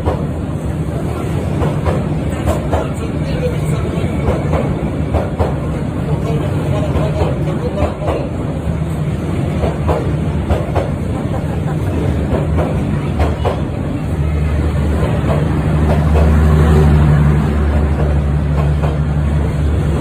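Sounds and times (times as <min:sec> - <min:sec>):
train running on rails: 0:00.0 - 0:20.0
sharp clacks and knocks: 0:09.5 - 0:11.5, 0:17.9 - 0:19.1.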